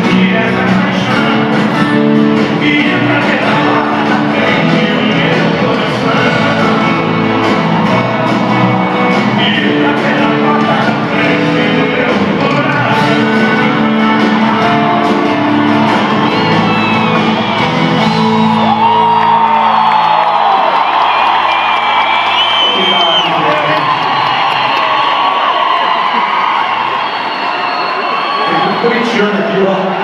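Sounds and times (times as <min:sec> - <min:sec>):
live band playing with singing: 0:00.0 - 0:30.0
audience shouting and whooping: 0:00.9 - 0:30.0.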